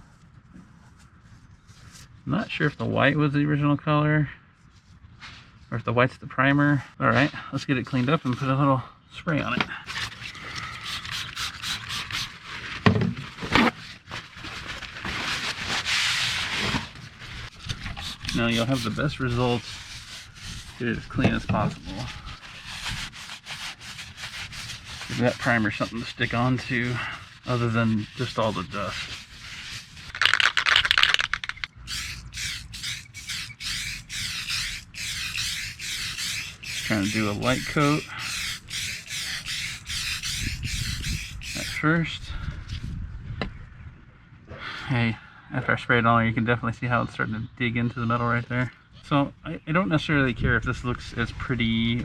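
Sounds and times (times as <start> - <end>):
rubbing and scraping on car panel: 9.8 - 41.8
aerosol can rattling: 10.0 - 12.4, 17.5 - 19.0, 28.8 - 41.8
spray can hissing bursts: 10.8 - 12.4, 30.1 - 41.8.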